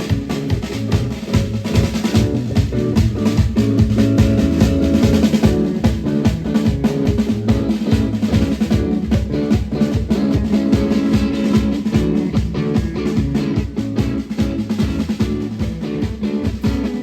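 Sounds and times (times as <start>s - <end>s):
drum kit fast beat: 0.0s - 17.0s
rock band playing: 0.0s - 17.0s.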